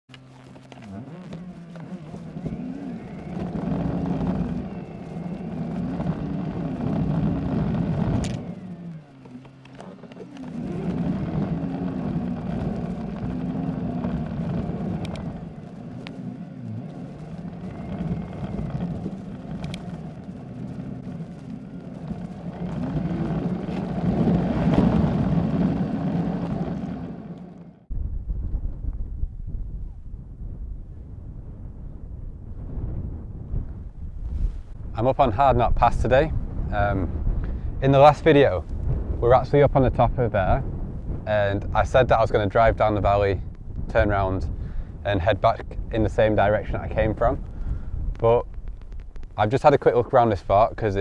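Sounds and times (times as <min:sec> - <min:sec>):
faint clicks: 0:00.1 - 0:27.8, 0:47.2 - 0:50.0
car engine running: 0:00.1 - 0:27.9.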